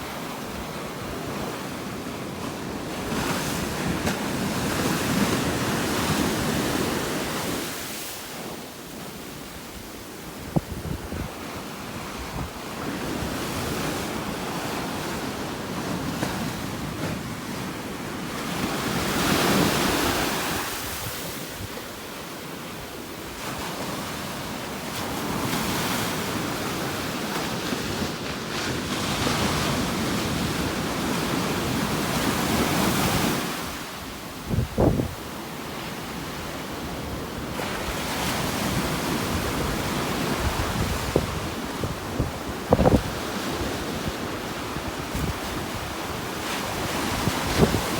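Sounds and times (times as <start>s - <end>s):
wind on microphone: 9.5s - 17.7s, 26.7s - 35.4s, 36.8s - 47.9s
ocean surf breaking: 11.1s - 22.8s.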